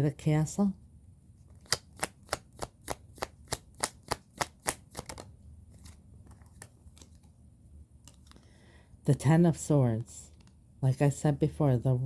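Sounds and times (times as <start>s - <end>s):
cards being shuffled: 1.5s - 7.4s.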